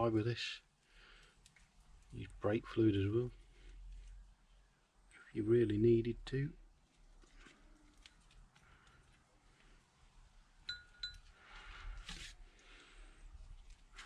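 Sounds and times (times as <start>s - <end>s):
metallic clinks with ring: 10.7s - 11.2s
scrape or rustle: 11.4s - 12.6s.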